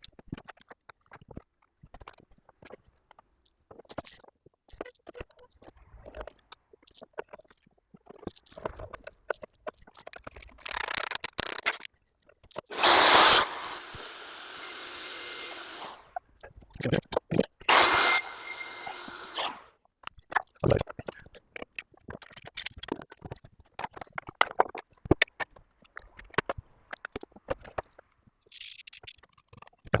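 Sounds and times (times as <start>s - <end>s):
drill whirring: 10.7s - 11.8s, 12.7s - 16.0s, 17.7s - 19.6s.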